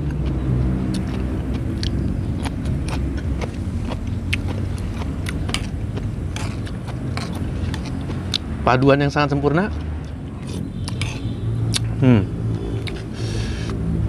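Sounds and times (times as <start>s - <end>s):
crunchy chewing: 0.0s - 8.9s, 9.7s - 11.9s
steady low rumble: 0.0s - 9.3s.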